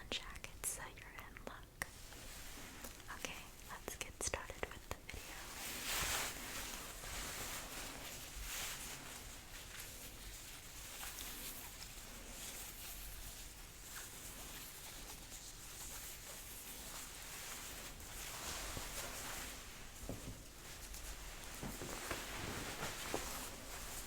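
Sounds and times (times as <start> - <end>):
jacket fabric rustling: 5.2 - 24.0.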